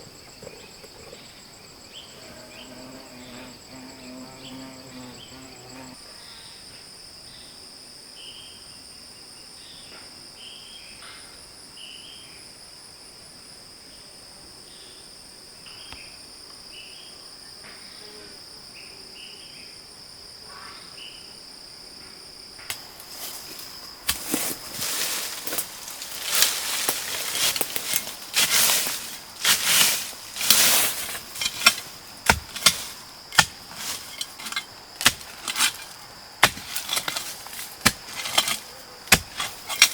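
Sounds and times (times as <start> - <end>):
insects trilling: 0.0 - 7.6, 15.6 - 39.9
scraping and knocking strokes: 23.0 - 39.9.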